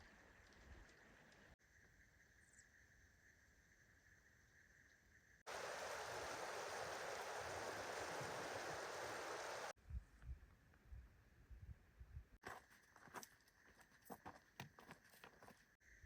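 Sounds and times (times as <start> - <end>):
mountain stream rushing: 5.5 - 9.7.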